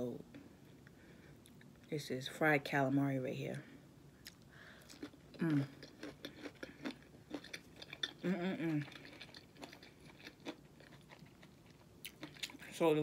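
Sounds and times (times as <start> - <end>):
person chewing crispy food: 4.2 - 12.8
person humming: 5.4 - 5.8, 8.2 - 8.9.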